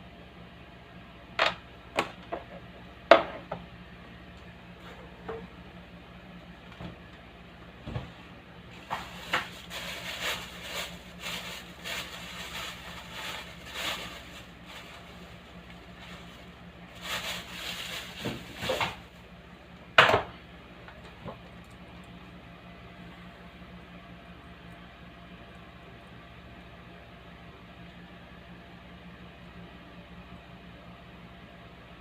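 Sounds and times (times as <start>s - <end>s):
speaker electrical hum: 0.0s - 32.0s.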